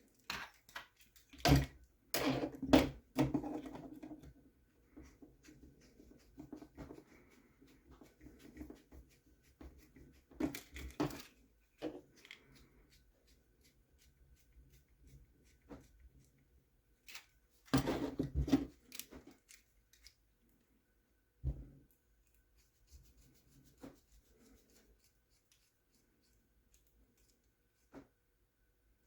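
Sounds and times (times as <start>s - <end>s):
plastic parts clicking and rattling: 0.0s - 4.3s, 10.4s - 12.5s, 17.0s - 20.2s.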